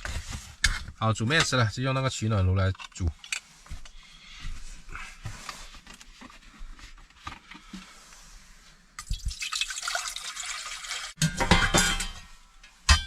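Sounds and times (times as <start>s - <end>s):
water pouring into a pot: 9.0s - 11.2s
cookware clinking and knocking: 11.2s - 13.0s.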